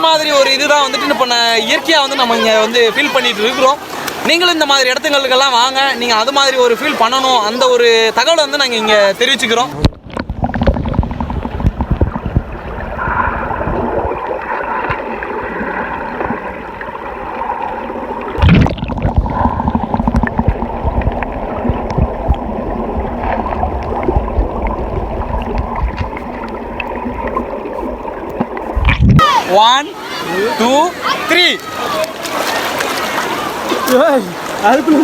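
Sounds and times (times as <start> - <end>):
muffled underwater gurgling: 9.7 - 29.4.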